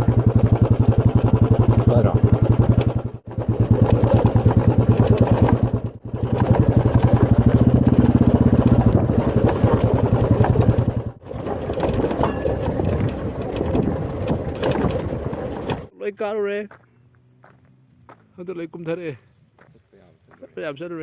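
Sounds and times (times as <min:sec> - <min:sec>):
motorcycle engine running: 0:00.0 - 0:15.9.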